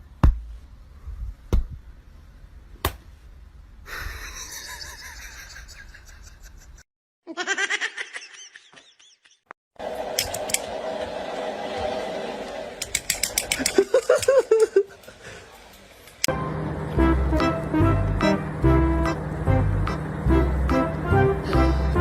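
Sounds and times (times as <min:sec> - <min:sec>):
person laughing: 0:03.9 - 0:09.5, 0:13.6 - 0:15.2.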